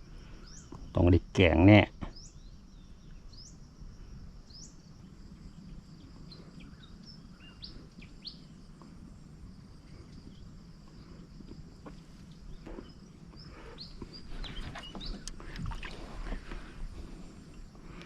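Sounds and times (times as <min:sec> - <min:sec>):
high insect drone: 0:00.0 - 0:18.0
bird chirping: 0:04.5 - 0:08.6, 0:11.9 - 0:16.1.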